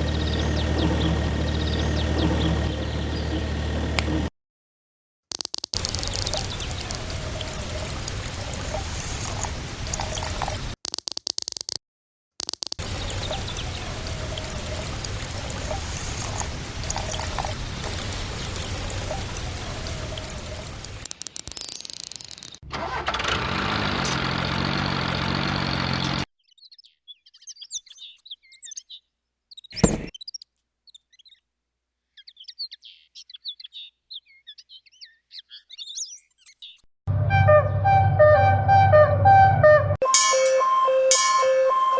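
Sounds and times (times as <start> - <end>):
sharp click: 5.3 - 7.0, 10.8 - 11.8, 12.4 - 13.0
small motor running: 5.3 - 7.4.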